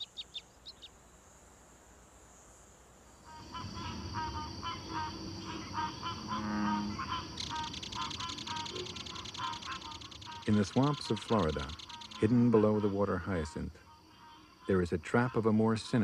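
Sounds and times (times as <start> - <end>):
high buzzing chorus: 3.2 - 16.0
rapid animal calls: 3.3 - 13.5.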